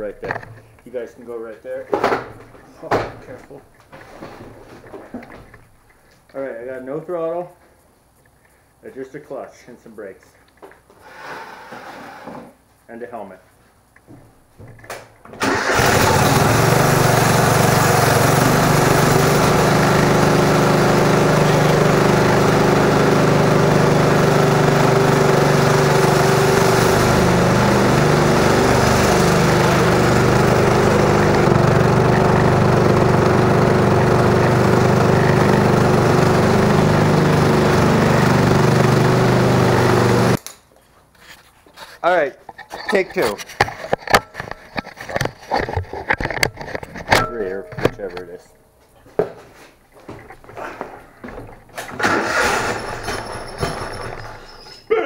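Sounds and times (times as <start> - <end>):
lawn tractor engine running: 15.4 - 40.4, 51.3 - 54.6.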